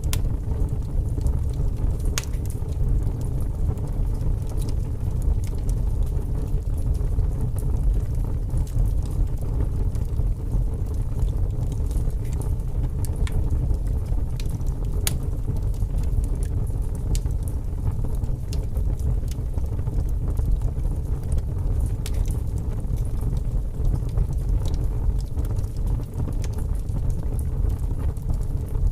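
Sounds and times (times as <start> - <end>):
fire crackling and popping: 0.0 - 28.9
fire flames rumbling: 0.0 - 28.9.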